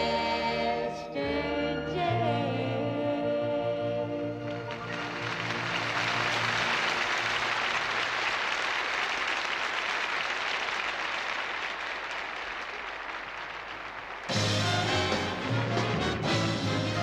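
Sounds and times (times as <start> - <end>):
audience applauding: 4.3 - 17.0.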